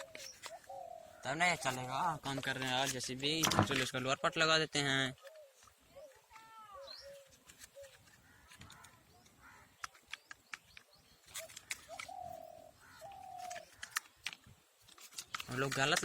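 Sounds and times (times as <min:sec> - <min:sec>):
faint bird calls: 0:00.0 - 0:02.2, 0:03.8 - 0:14.5
plastic toy parts clicking: 0:07.5 - 0:12.2, 0:13.3 - 0:16.0.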